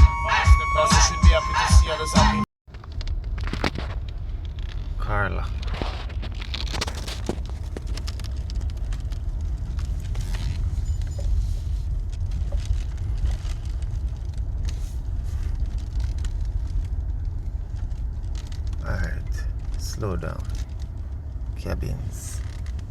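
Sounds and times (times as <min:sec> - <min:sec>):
small clicks and rattles: 0:02.7 - 0:18.8, 0:19.4 - 0:21.6, 0:22.4 - 0:22.9
car tyre and engine rumble: 0:02.7 - 0:22.9.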